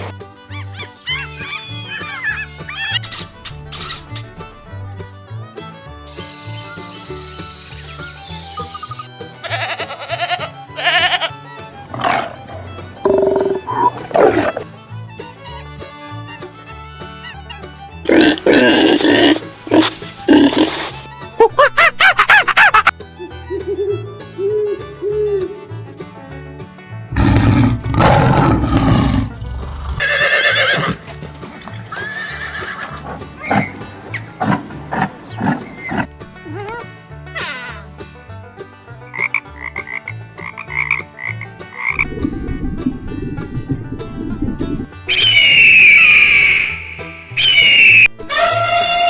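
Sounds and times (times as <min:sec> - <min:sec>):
background music: 0:00.0 - 0:49.0
animal calls: 0:00.5 - 0:04.2
high chirping: 0:06.1 - 0:09.1
horse neighing: 0:27.1 - 0:31.0.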